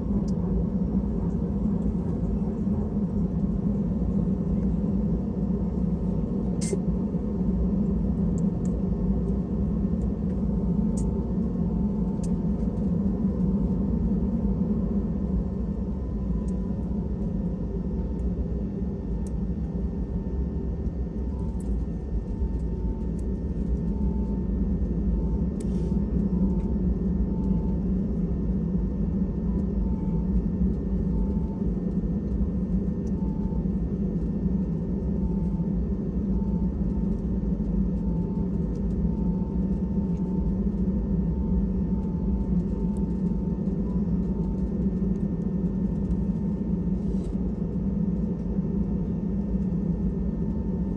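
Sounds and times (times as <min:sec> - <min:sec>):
airplane cabin rumble: 0:00.0 - 0:50.9.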